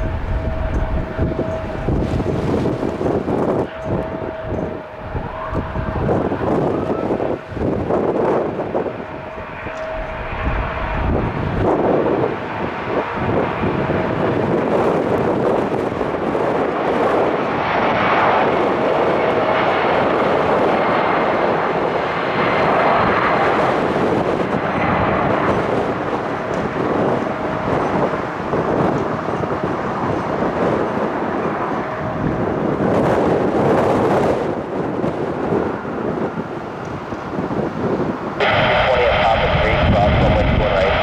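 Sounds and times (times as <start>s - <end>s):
jet airliner taking off: 0.0s - 41.0s.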